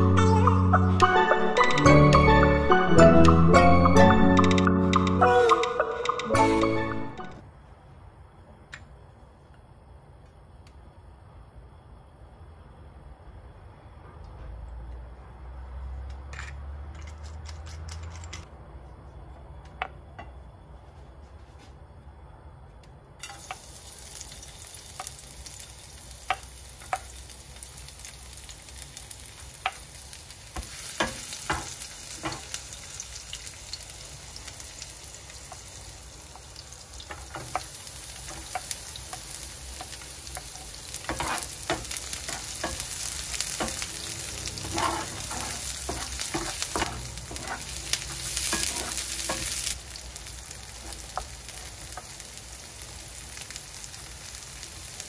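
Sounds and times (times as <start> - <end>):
food sizzling in hot oil: 23.2 - 55.0
wooden spatula scraping a plate: 41.1 - 42.8, 44.4 - 49.7.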